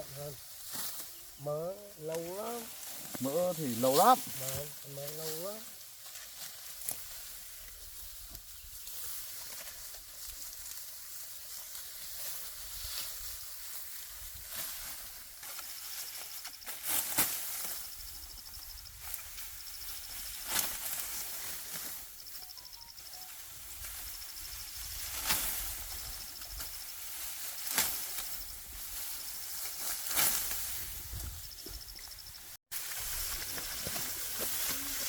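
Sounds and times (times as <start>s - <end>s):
dry leaves rustling and crackling: 0.0s - 31.4s, 32.3s - 35.0s
insect trilling: 17.4s - 21.2s, 21.8s - 29.7s.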